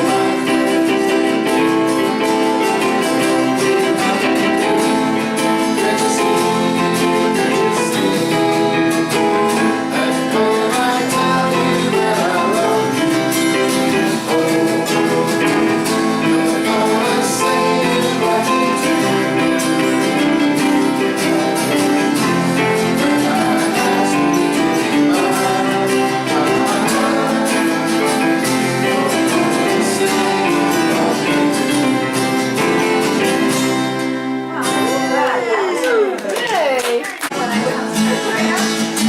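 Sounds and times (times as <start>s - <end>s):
person singing: 0.0s - 36.2s, 37.3s - 39.0s
guitar-led band music: 0.0s - 39.0s.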